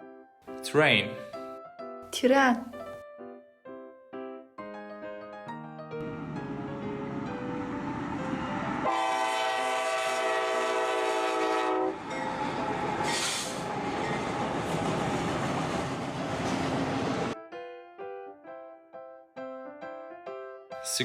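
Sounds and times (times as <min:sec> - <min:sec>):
train horn chord: 0:06.0 - 0:12.1
train rumble and rail clatter: 0:06.0 - 0:17.4.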